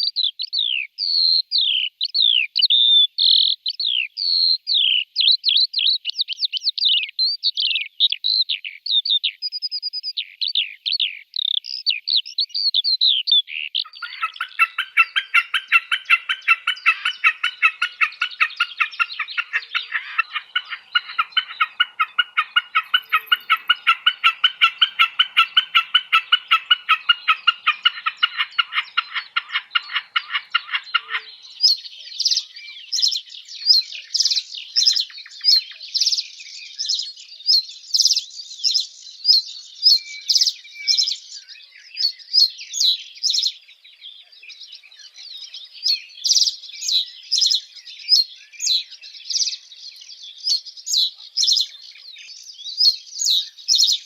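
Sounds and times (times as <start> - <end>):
high sharp bird chirps: 11.4 - 37.2, 50.4 - 54.0
bird rapid repeated call: 13.1 - 41.4, 50.5 - 54.0.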